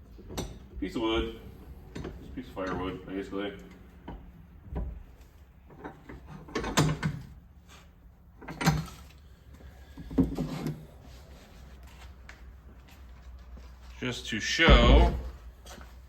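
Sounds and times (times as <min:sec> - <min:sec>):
firewood knocking and clunking: 0:00.0 - 0:07.2, 0:14.6 - 0:15.5.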